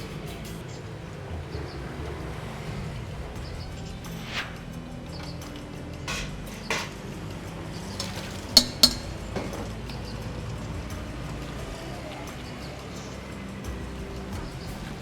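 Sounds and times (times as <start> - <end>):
cutlery clinking against a dish: 7.8 - 10.0.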